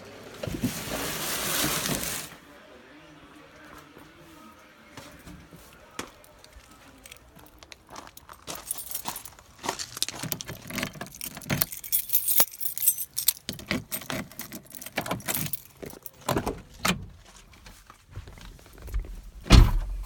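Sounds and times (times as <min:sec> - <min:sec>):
keys jangling: 0:08.1 - 0:16.4.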